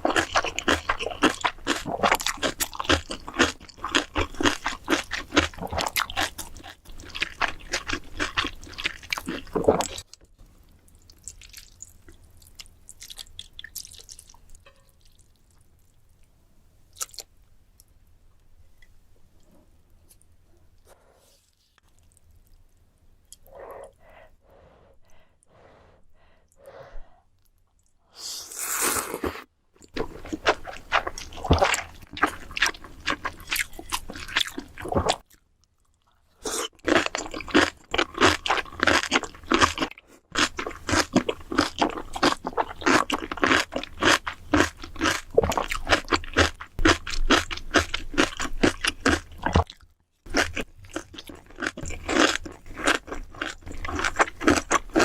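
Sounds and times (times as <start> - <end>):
crunchy chewing: 0.0 - 10.2, 29.8 - 55.0.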